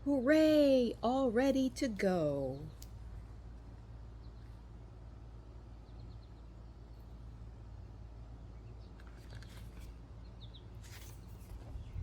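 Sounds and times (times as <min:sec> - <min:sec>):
brief rustle: 0:10.8 - 0:11.8.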